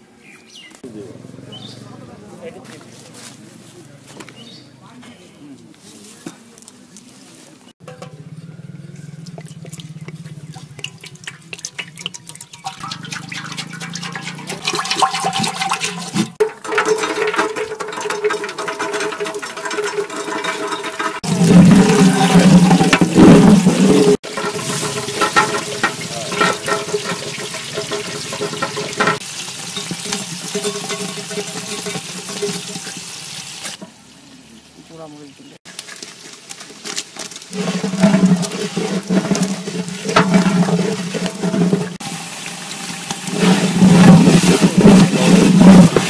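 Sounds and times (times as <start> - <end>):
onions hitting hot oil: 9.2 - 34.1, 35.7 - 46.0
hot oil sizzling in a pot: 10.6 - 35.0, 35.7 - 46.0.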